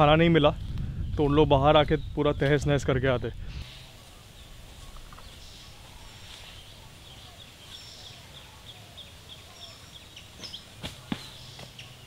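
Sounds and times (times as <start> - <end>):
birds chirping: 0.0 - 12.0
faint low wind rumble: 0.0 - 12.0
higher bird calls: 3.6 - 12.0.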